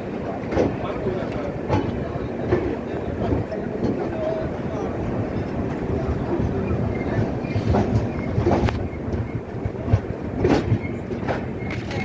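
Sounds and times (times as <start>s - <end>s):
train rolling on track: 0.0s - 12.0s
train wheel squeals: 6.5s - 9.6s, 10.4s - 12.0s.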